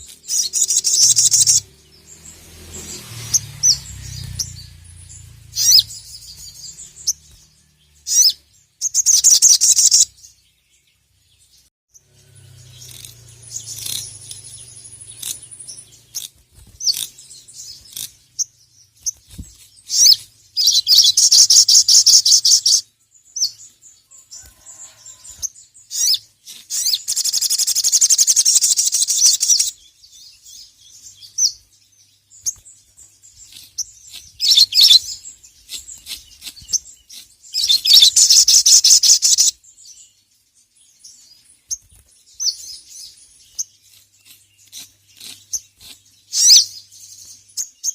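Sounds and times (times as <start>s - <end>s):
bird chattering trills: 0.0s - 3.0s, 3.6s - 7.2s, 8.0s - 10.2s, 12.0s - 19.2s, 19.9s - 22.8s, 25.9s - 29.8s, 33.3s - 39.6s
bird chirps and calls: 0.0s - 47.9s.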